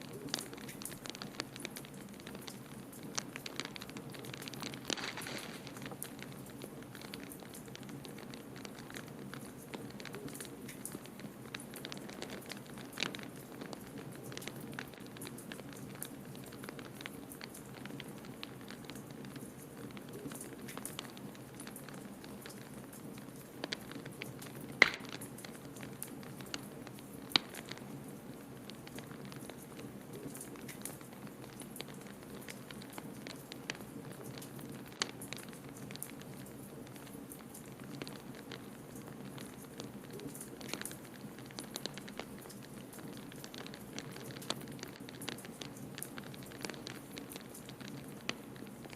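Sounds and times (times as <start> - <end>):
wood fire crackling: 0.0 - 48.9
sharp fire pops: 3.5 - 7.8, 23.8 - 25.6.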